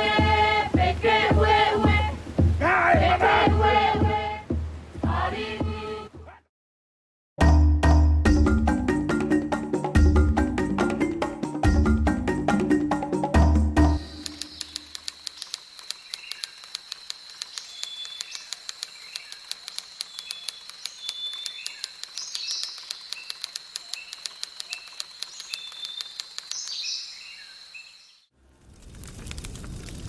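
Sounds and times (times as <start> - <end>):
rapid even ticking: 13.9 - 26.8
birds chirping: 14.0 - 28.3.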